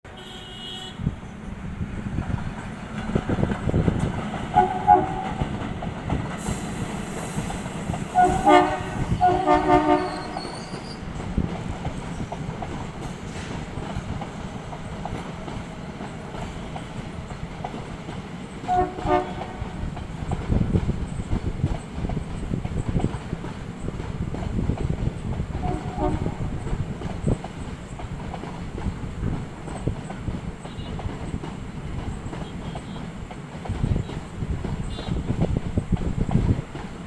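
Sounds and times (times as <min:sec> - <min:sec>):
train horn blasts: 0:00.1 - 0:01.1, 0:04.5 - 0:05.5, 0:08.1 - 0:10.8, 0:18.6 - 0:19.8, 0:25.6 - 0:26.6, 0:30.7 - 0:31.0, 0:32.4 - 0:33.1, 0:34.9 - 0:35.3
train rumble and wheel clatter: 0:00.1 - 0:37.0.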